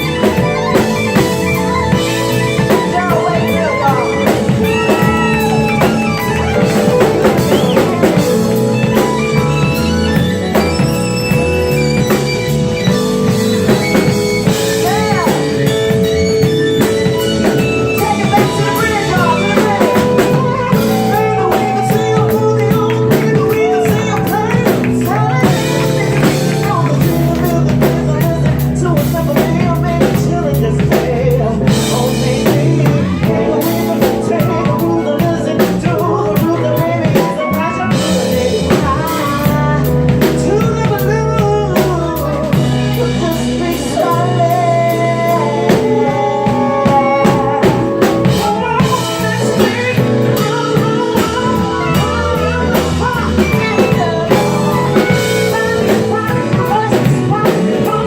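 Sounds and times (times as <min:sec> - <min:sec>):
sung or saxophone runs: 0:00.0 - 0:41.1
live band playing groove: 0:00.0 - 0:58.0.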